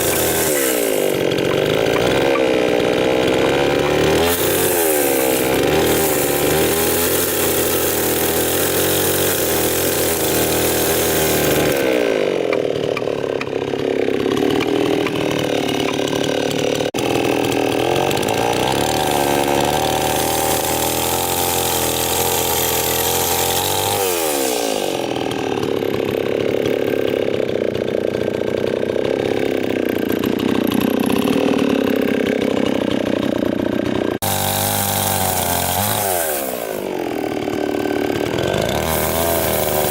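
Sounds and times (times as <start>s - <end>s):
engine power tool cutting wood: 0.0s - 39.9s.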